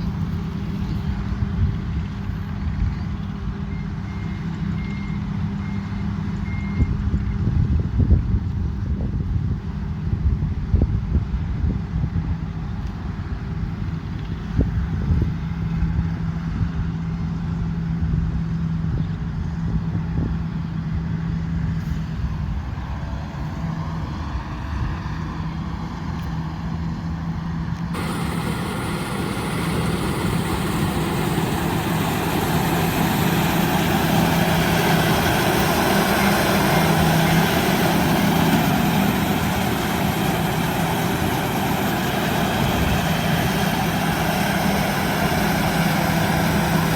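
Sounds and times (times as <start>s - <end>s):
diesel engine running: 27.9s - 46.9s
harsh machinery noise: 28.0s - 46.9s.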